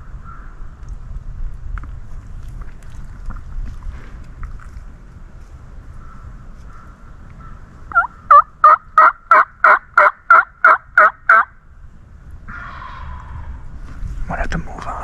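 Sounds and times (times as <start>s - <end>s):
turkey yelping: 7.9s - 11.5s.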